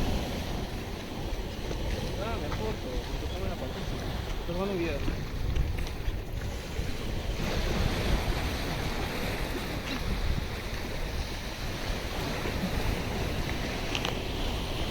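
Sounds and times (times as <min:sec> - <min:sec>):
surf hissing: 0:00.0 - 0:05.5
wind buffeting microphone: 0:00.0 - 0:14.9.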